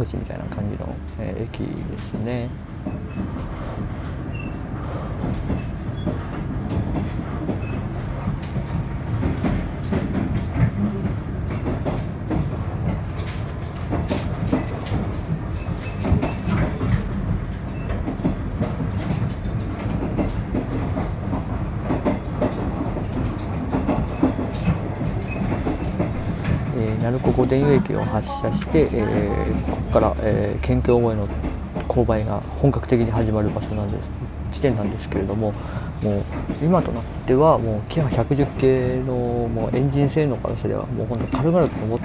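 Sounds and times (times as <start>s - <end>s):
wheels clicking on rail joints: 0.0s - 27.7s, 28.8s - 42.0s
train running rumble: 0.0s - 42.0s.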